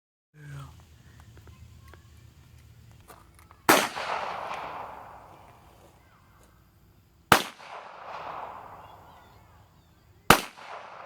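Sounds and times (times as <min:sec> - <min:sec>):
gunshots echoing: 0:03.6 - 0:06.0, 0:07.3 - 0:09.6, 0:10.3 - 0:11.0.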